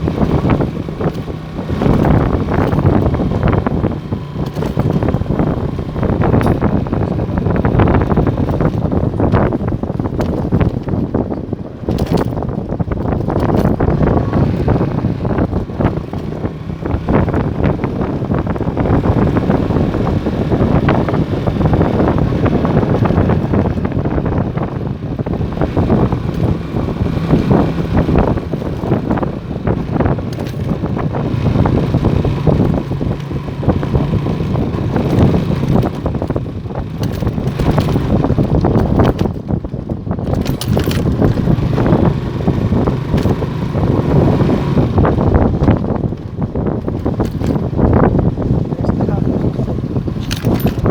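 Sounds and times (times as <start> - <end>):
motorcycle engine hum: 0.0 - 50.9
wind buffeting microphone: 0.0 - 50.9.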